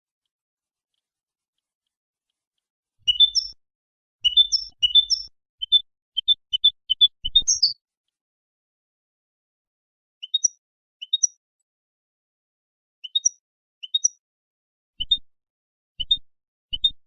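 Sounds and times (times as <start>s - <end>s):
goldfinch singing: 3.0s - 3.6s, 4.2s - 7.8s, 10.2s - 11.4s, 13.0s - 14.2s.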